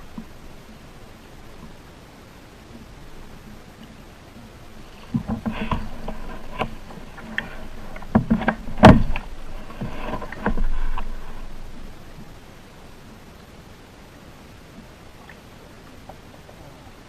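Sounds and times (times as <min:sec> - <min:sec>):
washes of water noise: 0:00.0 - 0:13.1
kayak and paddle knocking: 0:04.8 - 0:12.3.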